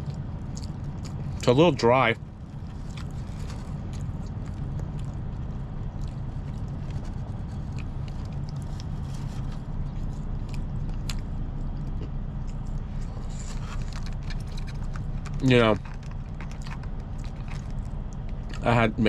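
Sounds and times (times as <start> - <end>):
person chewing and eating: 0.0 - 1.5, 2.2 - 18.8
engine idling: 0.0 - 19.0.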